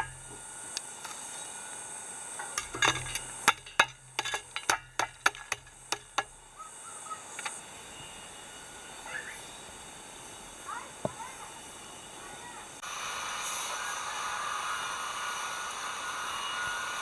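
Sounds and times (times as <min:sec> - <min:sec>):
sharp clicks and knocks: 0:02.4 - 0:06.4.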